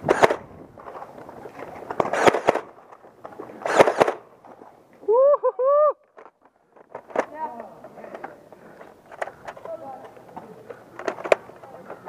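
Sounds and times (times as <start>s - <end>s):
foam dart blaster firing: 0.0s - 0.4s, 2.0s - 2.7s, 3.6s - 4.2s.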